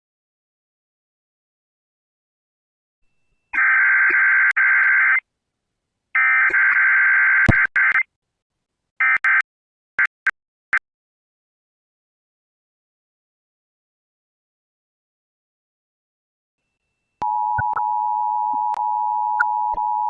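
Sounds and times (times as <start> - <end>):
quick blips with clicks: 17.2 - 17.9.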